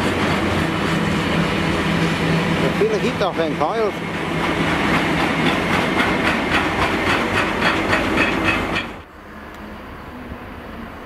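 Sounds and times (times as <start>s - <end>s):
distant diesel locomotive running: 0.0s - 11.0s
freight wagon wheels clicking on rails: 2.8s - 9.0s.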